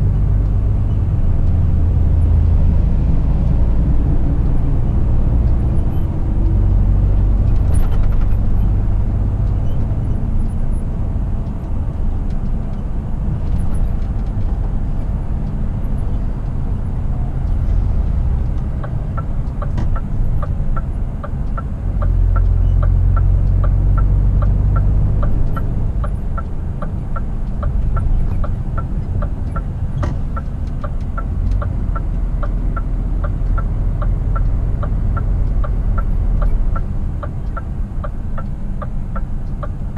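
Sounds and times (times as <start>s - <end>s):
truck diesel engine rumble: 0.0s - 39.9s
regular ticking: 18.4s - 39.9s.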